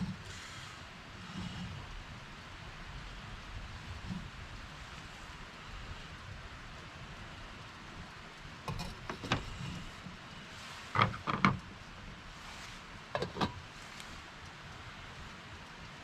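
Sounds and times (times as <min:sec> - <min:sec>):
steady hiss: 0:00.0 - 0:16.0
gear clunking and knocking: 0:08.7 - 0:10.2, 0:10.9 - 0:11.9, 0:13.1 - 0:13.8.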